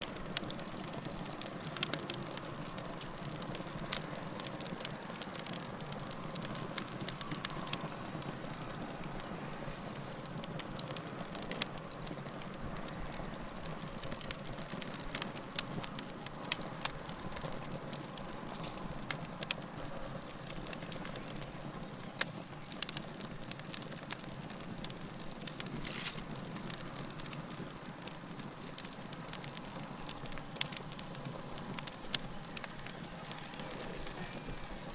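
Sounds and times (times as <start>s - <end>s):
wood fire crackling: 0.0s - 34.9s.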